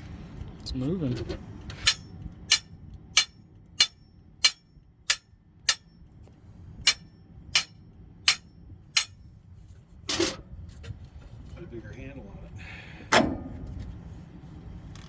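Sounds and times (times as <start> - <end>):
hand tool clicking on metal: 1.8 - 5.8.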